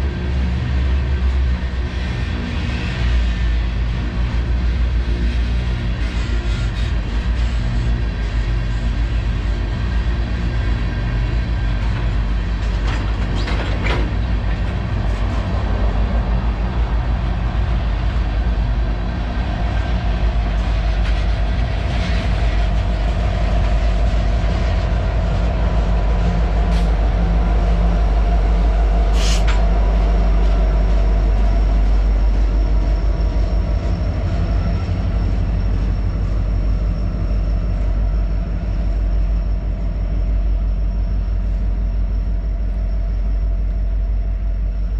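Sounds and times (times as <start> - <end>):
freight train rumbling past: 0.0 - 44.9.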